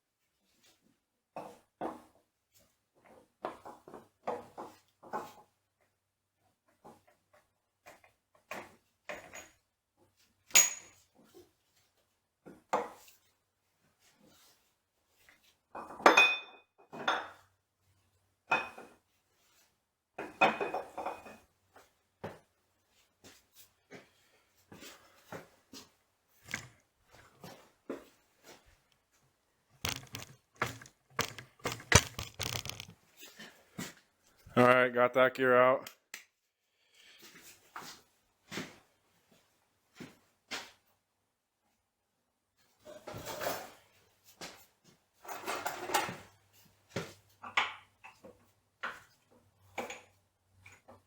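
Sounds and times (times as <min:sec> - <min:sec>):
metallic clinks and knocks: 0:10.5 - 0:11.0, 0:29.8 - 0:32.9
metal parts clattering: 0:29.9 - 0:32.9.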